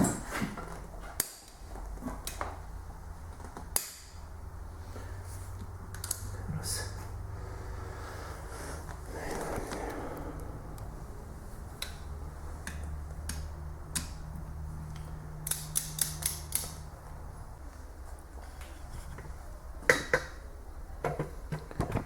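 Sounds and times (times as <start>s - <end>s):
low steady hum: 1.6s - 15.7s
metallic tool clicks and knocks: 14.9s - 16.8s.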